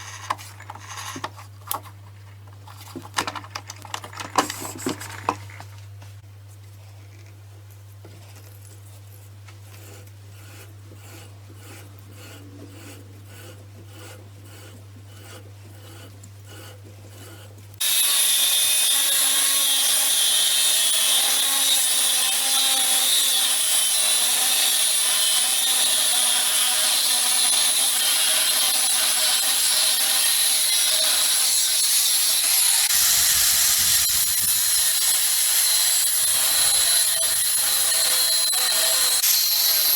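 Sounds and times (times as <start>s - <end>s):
sander rubbing against wood: 9.8s - 18.2s
angle grinder whining: 17.8s - 39.9s.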